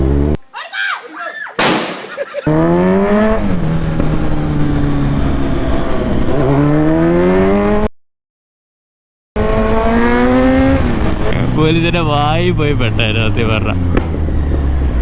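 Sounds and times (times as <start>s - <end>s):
motorcycle engine revving: 0.0s - 0.4s, 2.4s - 7.9s, 9.4s - 15.0s.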